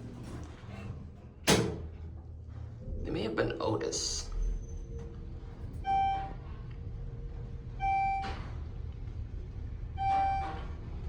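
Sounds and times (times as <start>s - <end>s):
elevator travel rumble: 0.0s - 11.0s
electronic elevator chime: 10.0s - 10.6s.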